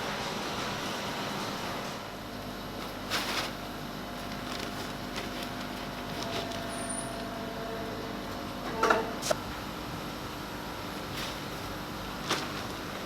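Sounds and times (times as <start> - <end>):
injection molding machine humming: 5.8 - 10.9.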